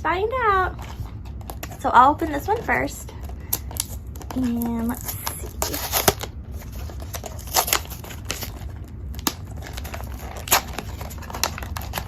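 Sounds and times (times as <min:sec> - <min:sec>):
cardboard packaging crinkling and tearing: 0:00.7 - 0:12.0
packaging snapping: 0:03.2 - 0:12.0.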